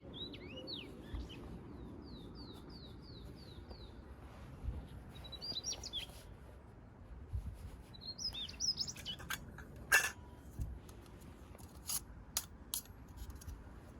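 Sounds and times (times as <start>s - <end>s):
bird chirps: 0.0s - 4.0s, 5.2s - 6.2s, 7.9s - 9.4s.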